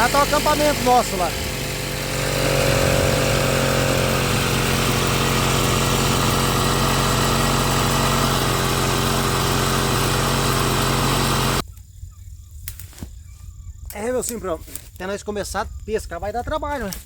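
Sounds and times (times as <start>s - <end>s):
outboard motor running: 0.0s - 11.6s.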